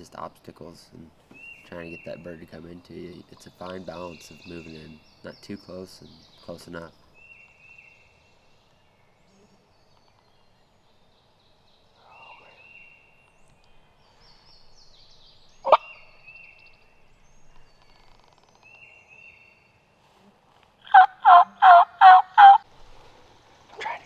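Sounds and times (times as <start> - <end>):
turkey yelping: 15.7 - 16.0, 20.9 - 22.6.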